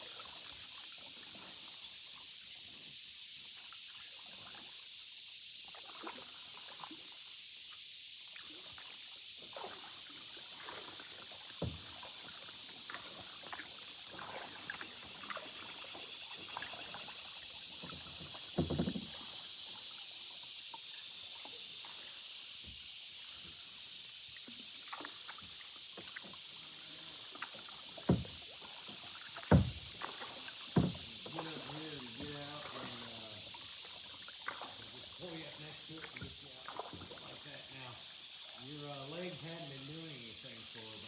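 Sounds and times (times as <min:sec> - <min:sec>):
hiss of moving water: 0:00.0 - 0:41.0
paddle splashes and drips: 0:00.0 - 0:41.0
knocks on canoe: 0:11.6 - 0:11.9, 0:18.4 - 0:19.2, 0:28.0 - 0:28.4, 0:29.4 - 0:32.8.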